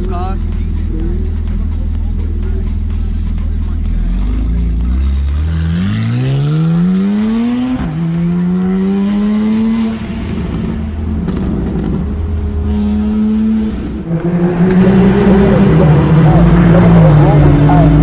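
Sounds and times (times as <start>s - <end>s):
sports car engine accelerating: 0.0s - 18.0s.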